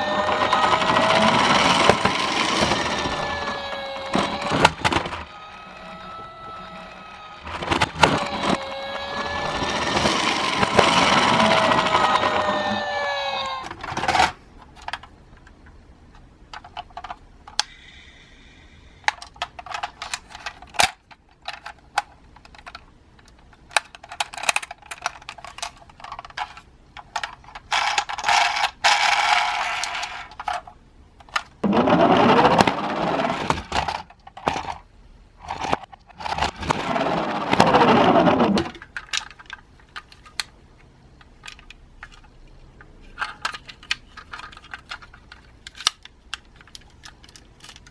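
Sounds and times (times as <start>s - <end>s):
toy cars clattering on plastic: 0.0s - 6.8s, 7.4s - 17.8s, 19.0s - 47.9s
toy cars rolling along track: 0.0s - 18.2s, 18.8s - 40.6s, 41.2s - 47.9s.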